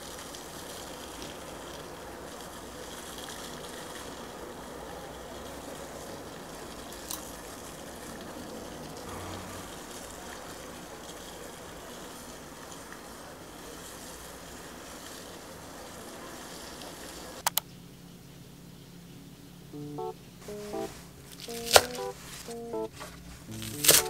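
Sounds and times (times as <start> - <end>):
steady background hiss: 0.0 - 24.0
sharp clicks: 17.4 - 17.7.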